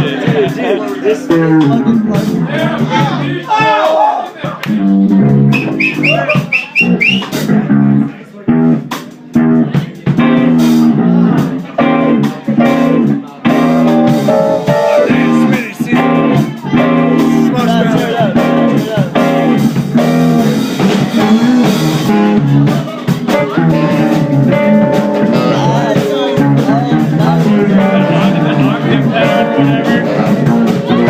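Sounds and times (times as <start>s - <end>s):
guitar and drums bluesy groove: 0.0s - 31.0s
person singing: 14.0s - 18.8s, 21.1s - 31.0s.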